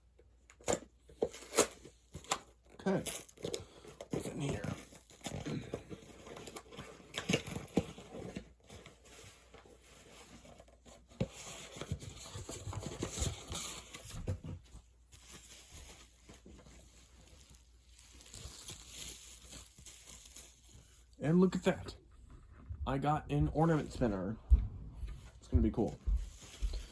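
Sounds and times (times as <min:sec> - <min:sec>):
packaging tearing and crinkling: 0:00.6 - 0:10.6, 0:15.2 - 0:21.1.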